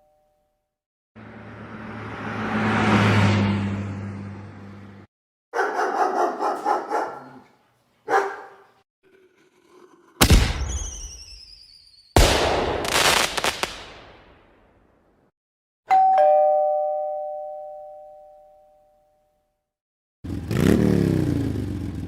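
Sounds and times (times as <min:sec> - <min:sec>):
dog barking: 0:05.5 - 0:08.8.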